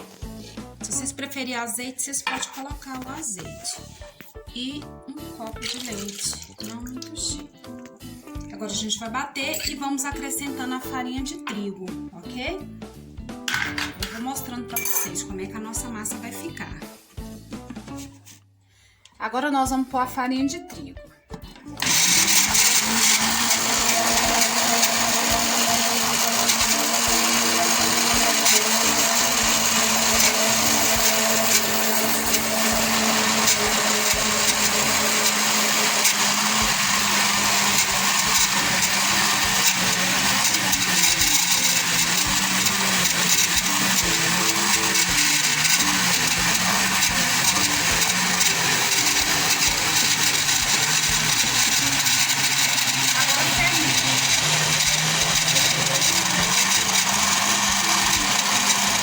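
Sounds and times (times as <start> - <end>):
blender running: 5.6 - 7.0, 21.8 - 59.0.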